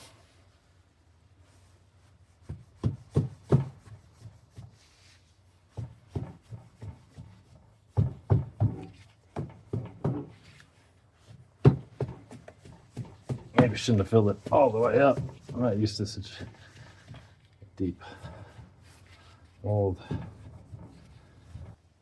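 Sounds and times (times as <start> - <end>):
dull thumps of sand ramming: 11.6 - 17.3.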